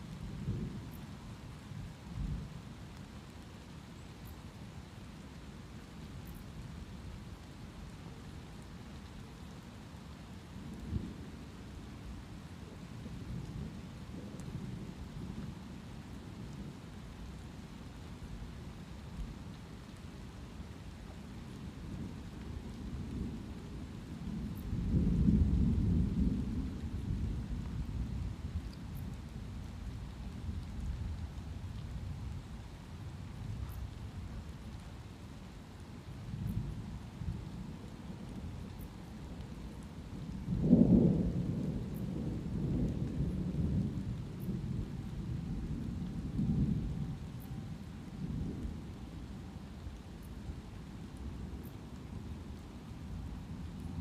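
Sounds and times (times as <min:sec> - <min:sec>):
light rain: 0:00.0 - 0:54.0
rolling thunder: 0:40.3 - 0:47.0.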